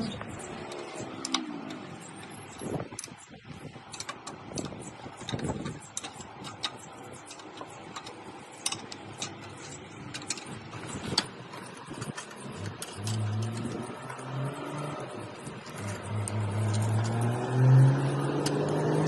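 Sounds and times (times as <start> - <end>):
hand tools clicking on metal: 0.0 - 19.0
low engine hum: 4.4 - 19.0.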